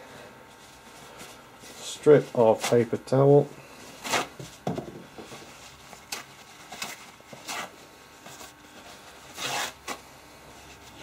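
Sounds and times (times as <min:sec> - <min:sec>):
paper towel tearing: 0:04.0 - 0:04.4, 0:05.6 - 0:07.8, 0:08.4 - 0:10.1.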